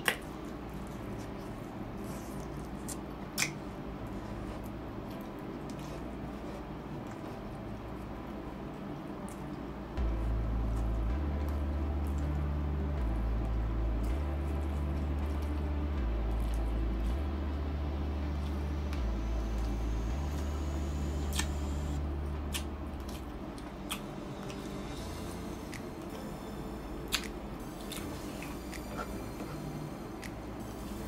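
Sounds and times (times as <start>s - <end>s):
lip smacks: 0.0s - 1.3s, 2.0s - 3.6s, 22.5s - 24.6s, 27.1s - 29.1s
wet chewing sounds: 0.0s - 17.4s, 21.2s - 26.2s, 27.1s - 31.0s
deep stepping hum: 9.8s - 31.0s.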